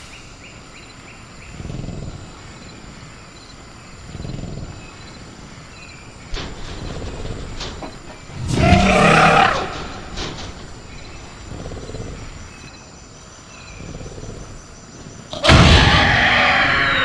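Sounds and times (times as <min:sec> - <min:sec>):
crickets chirping: 0:00.0 - 0:17.0
creature growling call: 0:08.5 - 0:10.4, 0:15.3 - 0:17.0.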